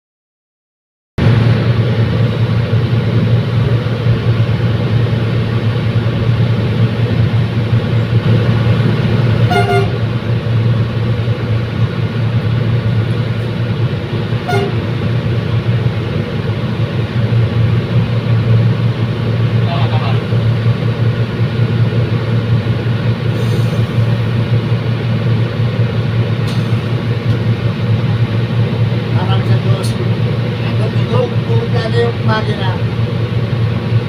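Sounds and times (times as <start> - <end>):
train diesel engine drone: 1.2 - 34.0
train horn toots: 9.4 - 10.2, 14.4 - 15.0.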